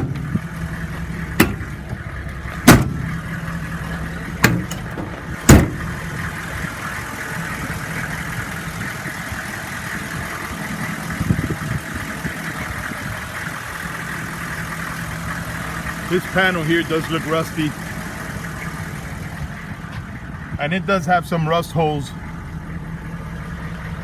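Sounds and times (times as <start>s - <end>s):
metal compartment doors banging shut: 0.0s - 6.5s
diesel engine idling: 0.0s - 24.0s.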